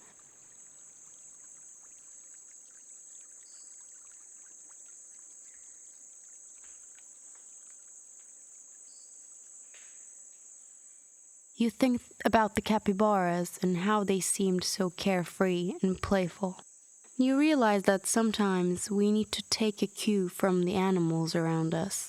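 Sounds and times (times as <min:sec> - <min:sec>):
faint ticks: 0:00.0 - 0:10.6
high-pitched insect trill: 0:00.1 - 0:12.6.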